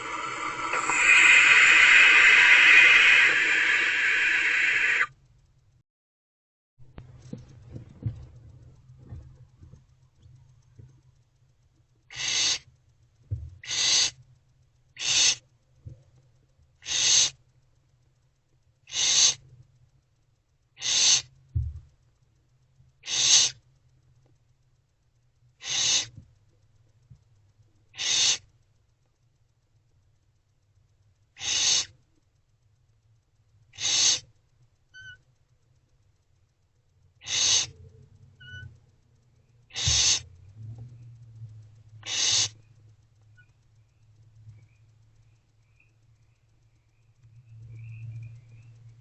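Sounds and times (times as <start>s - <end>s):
owlets hissing calls: 0.0s - 5.1s, 12.1s - 12.7s, 13.6s - 14.2s, 15.0s - 15.4s, 16.8s - 17.4s, 18.9s - 19.4s, 20.8s - 21.3s, 23.0s - 23.6s, 25.6s - 26.1s, 28.0s - 28.5s, 31.4s - 32.0s, 33.8s - 34.3s, 37.2s - 37.8s, 39.7s - 40.3s, 42.0s - 42.6s.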